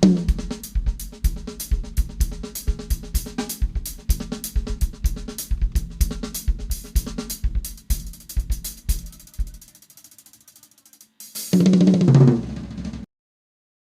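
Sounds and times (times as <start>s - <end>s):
drum kit playing a steady beat: 0.0s - 13.1s.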